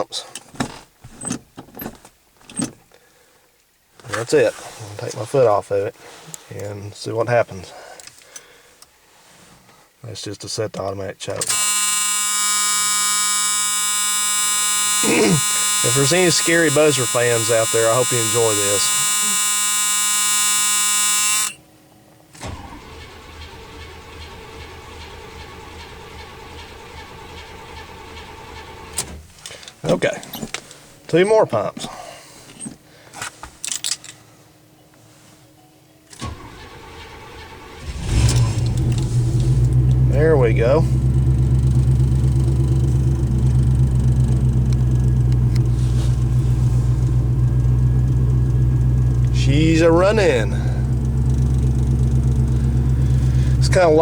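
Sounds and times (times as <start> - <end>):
ignition click: 11.4 - 21.6, 36.2 - 54.0
starter motor cranking engine: 11.4 - 21.6, 22.4 - 29.1, 36.2 - 54.0
dashboard warning buzzer: 11.5 - 21.6, 40.1 - 54.0.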